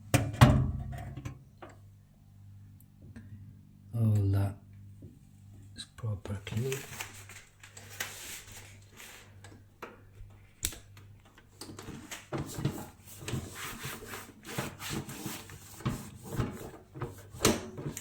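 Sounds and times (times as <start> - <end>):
cloth rubbing on microwave: 12.4 - 18.0.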